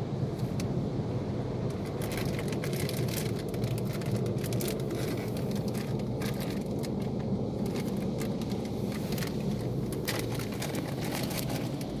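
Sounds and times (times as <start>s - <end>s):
car wash machine rumbling: 0.0s - 12.0s.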